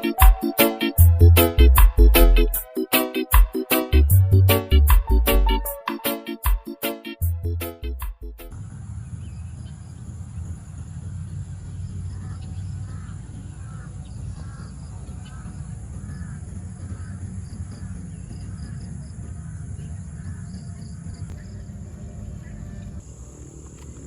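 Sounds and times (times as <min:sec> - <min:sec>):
bird calling: 0:11.7 - 0:24.0.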